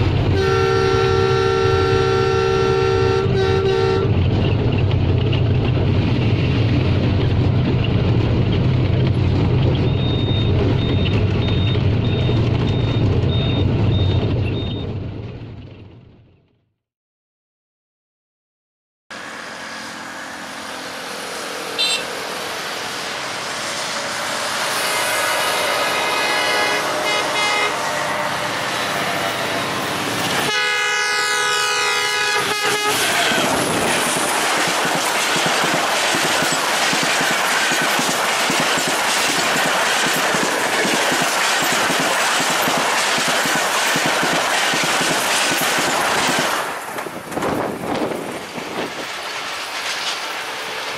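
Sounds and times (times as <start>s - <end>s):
approaching diesel train: 0.0s - 16.3s, 19.1s - 50.9s
multi-tone train horn blasts: 0.3s - 4.1s, 19.1s - 22.4s, 24.6s - 29.0s, 30.4s - 33.7s.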